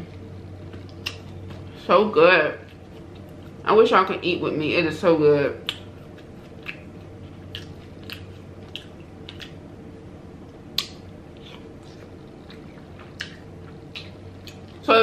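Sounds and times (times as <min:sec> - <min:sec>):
faint steady hum: 0:00.0 - 0:15.0
chewing and wet mouth smacks: 0:00.7 - 0:01.6, 0:05.6 - 0:09.7, 0:10.5 - 0:14.8.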